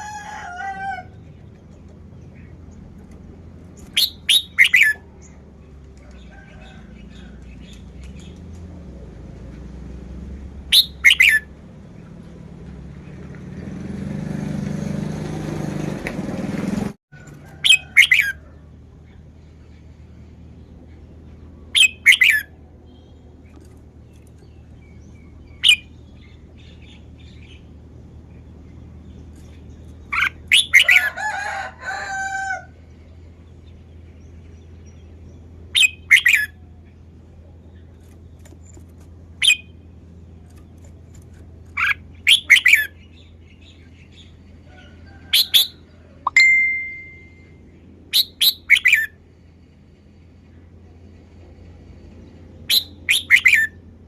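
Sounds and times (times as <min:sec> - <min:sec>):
bulbul singing whistled phrases: 0:03.9 - 0:05.1, 0:10.7 - 0:11.5, 0:21.8 - 0:22.6, 0:25.2 - 0:27.6, 0:35.8 - 0:36.6, 0:39.4 - 0:39.7, 0:41.8 - 0:43.9, 0:48.1 - 0:49.2, 0:52.7 - 0:53.8
steady low hum: 0:49.1 - 0:53.1.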